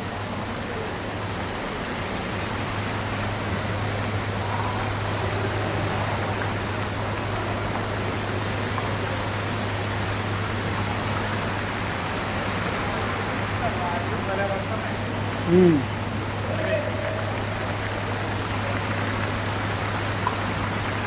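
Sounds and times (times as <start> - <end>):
fountain water rushing: 0.0 - 21.0.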